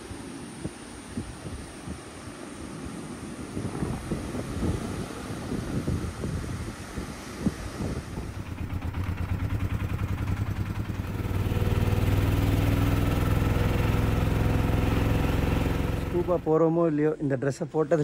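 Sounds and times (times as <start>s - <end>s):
engine running steadily: 7.1s - 16.6s.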